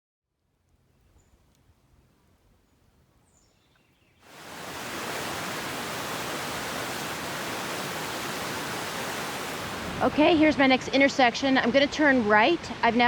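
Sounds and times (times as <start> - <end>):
creek water rushing: 4.2 - 10.6.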